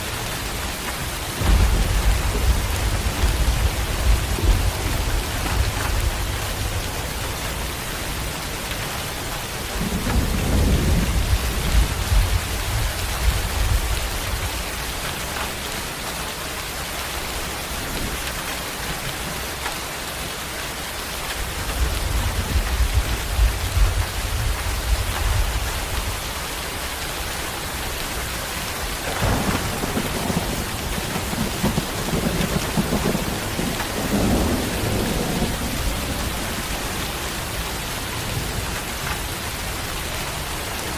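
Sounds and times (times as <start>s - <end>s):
heavy rain falling: 0.0s - 40.9s
rolling thunder: 1.1s - 8.3s, 9.6s - 14.7s, 28.7s - 38.7s.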